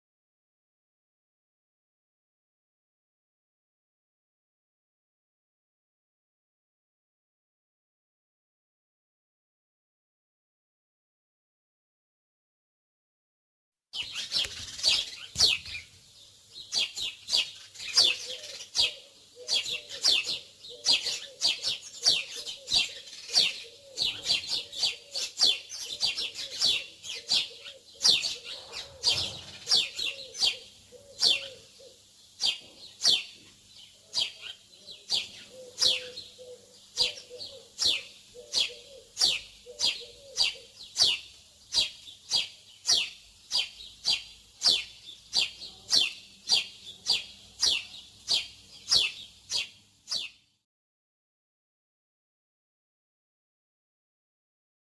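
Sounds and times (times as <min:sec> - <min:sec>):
low repeated bird call: 0:14.0 - 0:50.4
small birds chirping: 0:14.0 - 0:50.6.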